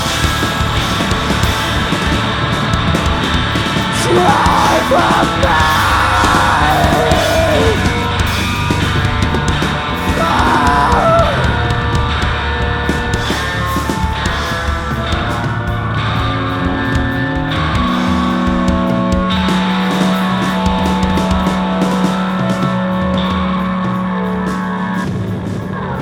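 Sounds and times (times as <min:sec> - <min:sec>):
live rock band playing: 0:00.0 - 0:25.7
shouted vocals: 0:03.9 - 0:08.2, 0:10.0 - 0:11.7.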